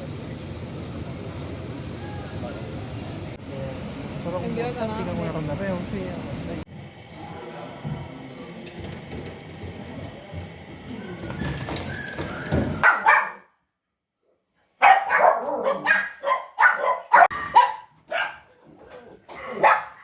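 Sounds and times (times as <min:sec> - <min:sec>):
dogs barking: 0:12.6 - 0:13.5, 0:14.8 - 0:18.6, 0:19.3 - 0:20.0.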